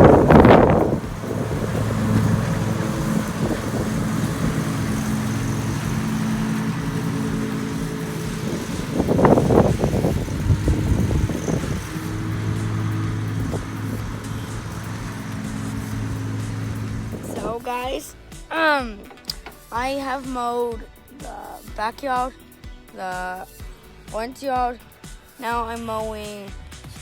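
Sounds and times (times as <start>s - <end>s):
loud rushing surges of noise: 0.0s - 17.7s
riding mower engine running: 0.0s - 18.0s.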